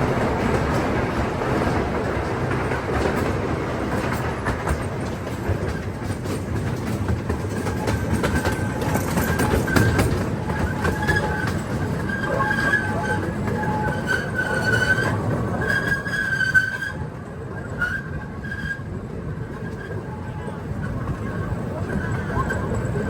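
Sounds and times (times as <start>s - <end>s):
train rumbling on rails: 0.0s - 23.0s
wheels clicking over track: 0.0s - 23.0s
high-pitched wheel squeal: 7.6s - 18.9s, 19.5s - 23.0s.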